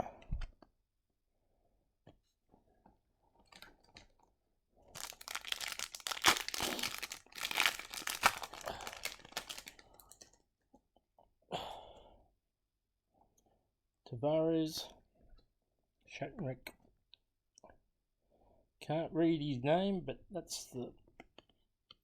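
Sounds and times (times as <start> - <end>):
plastic wrapper tearing and crinkling: 4.9 - 10.3.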